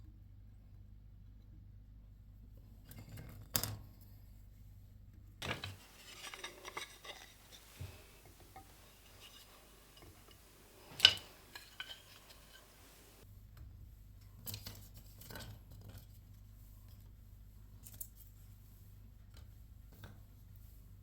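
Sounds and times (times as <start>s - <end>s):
household items knocking and clinking: 5.4s - 13.2s.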